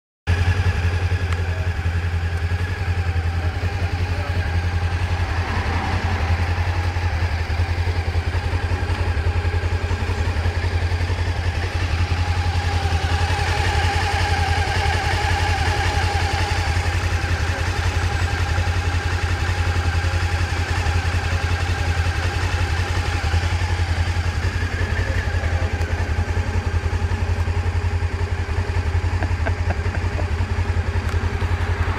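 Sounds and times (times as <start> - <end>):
motorcycle engine idling: 0.3 - 31.9.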